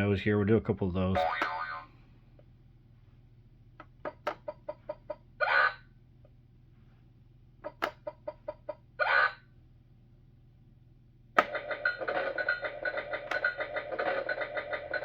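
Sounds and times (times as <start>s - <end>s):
electronic toy clicks: 11.4s - 15.0s.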